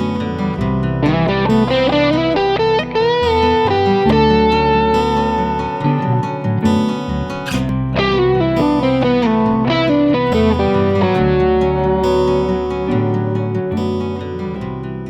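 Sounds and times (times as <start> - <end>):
acoustic guitar arpeggio: 0.0 - 15.0
electric bass line: 0.0 - 15.0
overdriven electric guitar lead: 0.0 - 15.0.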